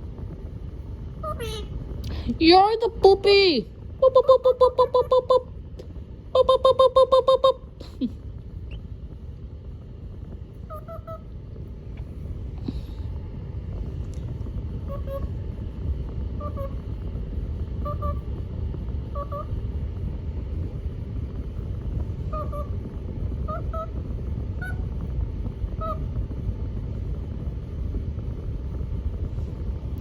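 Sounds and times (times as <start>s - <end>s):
steady low rumble: 0.0s - 30.0s
parrot honking: 1.2s - 1.8s, 6.4s - 7.7s, 10.6s - 11.3s, 14.9s - 15.3s, 16.4s - 16.8s, 17.8s - 18.3s, 19.1s - 19.6s, 22.3s - 22.8s, 23.4s - 24.0s, 24.6s - 24.9s, 25.8s - 26.1s.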